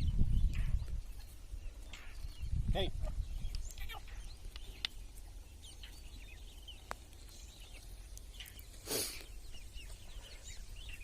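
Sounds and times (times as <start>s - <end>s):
birds chirping: 0.0s - 11.0s
burst of hiss: 8.8s - 9.3s.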